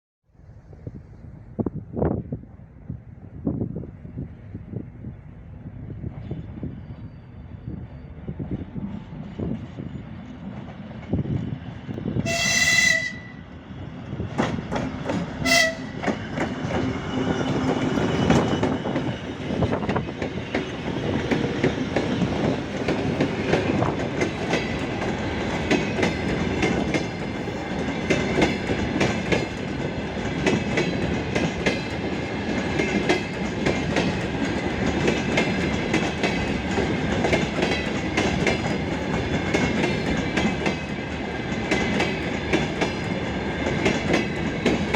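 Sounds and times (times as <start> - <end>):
locomotive horn: 12.2 - 13.5, 15.4 - 16.1
train wheels clacking over rail joints: 14.3 - 44.9.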